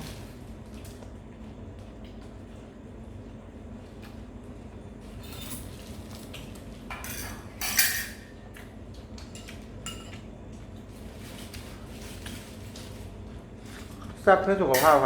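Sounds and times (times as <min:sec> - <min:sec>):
cutlery and dishes clinking: 0:06.9 - 0:08.2, 0:14.7 - 0:15.0
dishes clattering: 0:06.9 - 0:08.3, 0:14.7 - 0:15.0.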